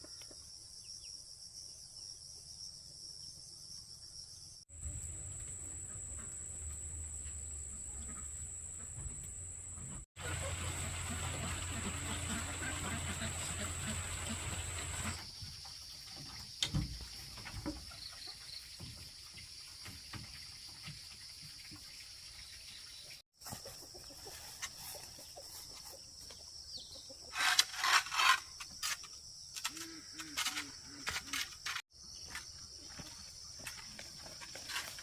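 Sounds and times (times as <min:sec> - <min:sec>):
running water: 0:10.2 - 0:17.4.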